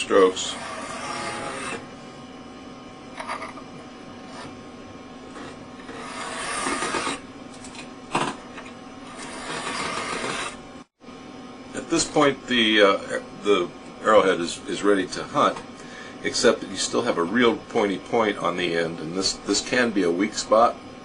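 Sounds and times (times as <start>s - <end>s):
metal blade rasping on file: 0.4s - 1.8s, 5.3s - 7.2s.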